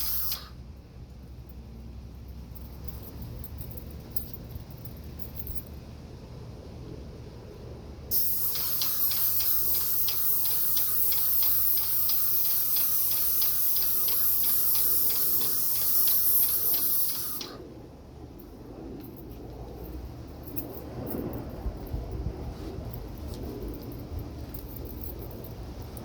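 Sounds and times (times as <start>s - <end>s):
paint sprayer hissing: 0.0s - 0.5s, 8.1s - 17.6s
regular ticking clicks: 8.4s - 17.6s.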